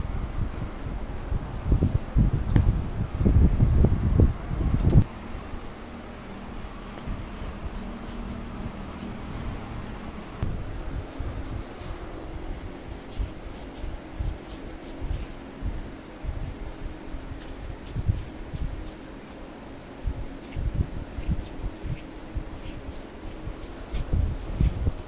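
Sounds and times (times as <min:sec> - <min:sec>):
skin rubbing and pressing: 0:06.6 - 0:15.5, 0:16.4 - 0:25.0.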